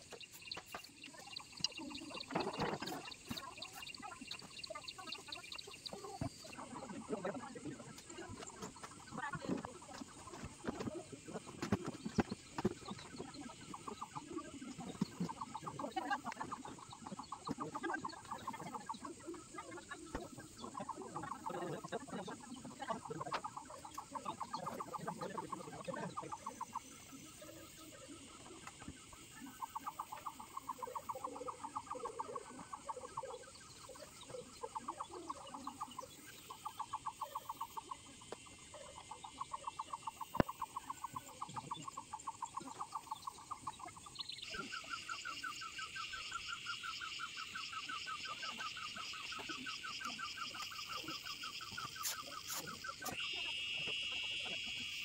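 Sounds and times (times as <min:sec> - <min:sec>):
animal pulsed trills: 0:00.0 - 0:55.0.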